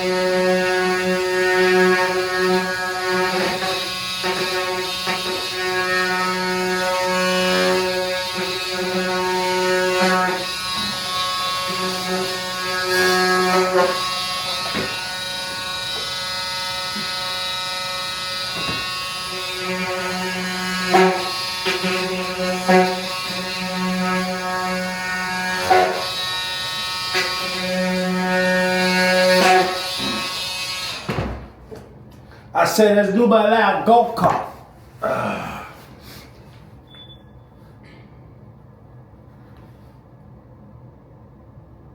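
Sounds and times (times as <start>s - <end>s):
power tool motor buzzing: 0.0s - 31.4s
sharp knocks: 18.5s - 19.1s.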